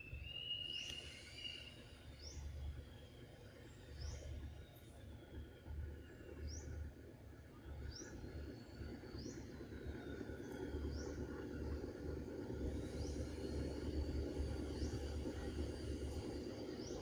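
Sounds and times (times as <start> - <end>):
bird high rising chirp: 0.0 - 2.5.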